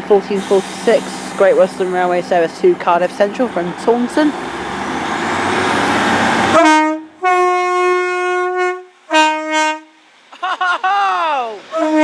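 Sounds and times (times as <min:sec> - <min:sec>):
train engine and rail noise: 0:00.0 - 0:12.0
two-tone train horn: 0:06.5 - 0:10.1, 0:11.7 - 0:12.0.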